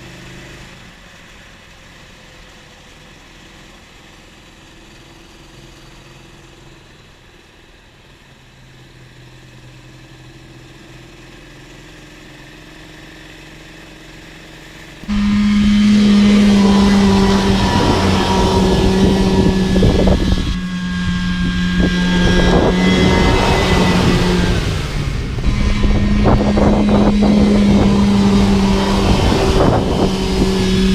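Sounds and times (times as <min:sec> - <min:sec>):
snowmobile engine running: 0:15.0 - 0:30.9.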